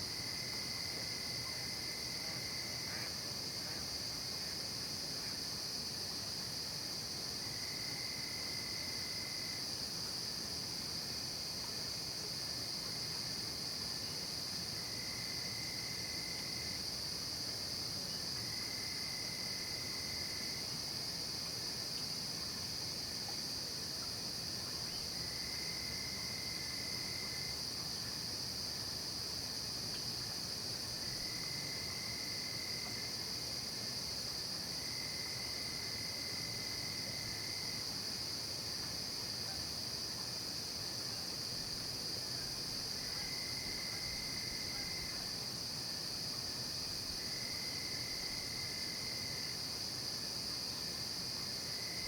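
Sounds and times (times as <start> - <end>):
crickets high-pitched drone: 11.0 - 52.0
lower insect trill: 11.0 - 52.0.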